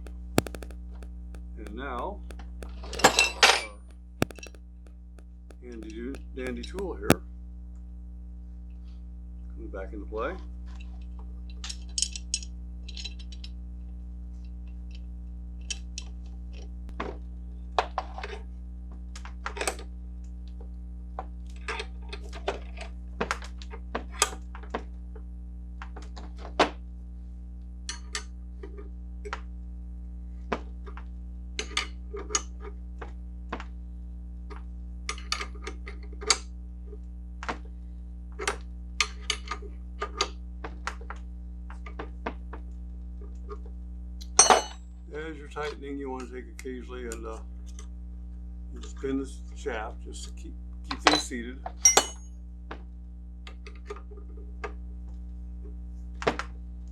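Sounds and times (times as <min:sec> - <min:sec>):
steady low hum: 0:00.0 - 0:07.2
hand tool clicking on metal: 0:51.8 - 0:52.2.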